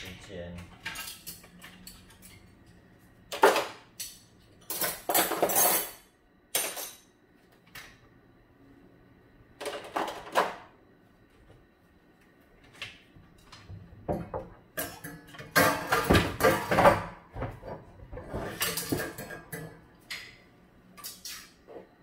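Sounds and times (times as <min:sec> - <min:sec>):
dishes and cutlery clinking: 0:00.8 - 0:07.2, 0:14.2 - 0:21.9.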